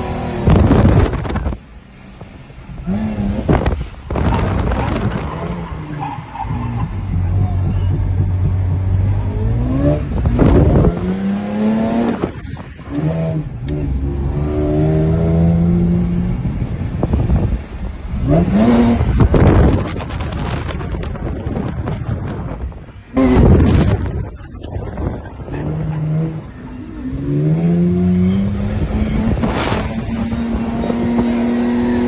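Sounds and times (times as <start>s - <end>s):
car engine revving hard: 6.6s - 17.6s, 18.2s - 19.8s, 25.4s - 32.0s.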